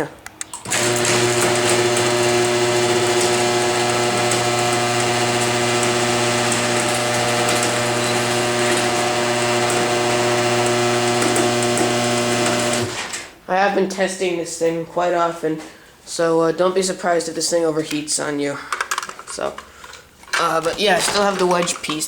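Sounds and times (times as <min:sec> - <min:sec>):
garage door opener motor hum: 0:00.5 - 0:13.3
chain drive running along rail: 0:00.6 - 0:13.2.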